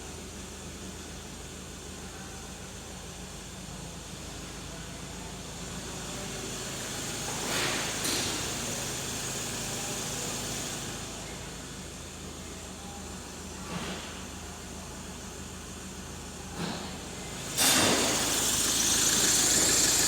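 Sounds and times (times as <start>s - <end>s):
diesel engine running: 15.5s - 20.0s
engine rushing surge: 17.7s - 20.0s.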